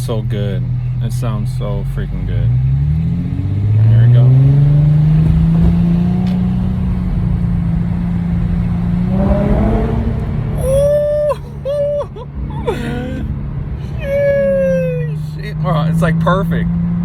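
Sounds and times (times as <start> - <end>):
car exhaust deep note: 2.4 - 14.0.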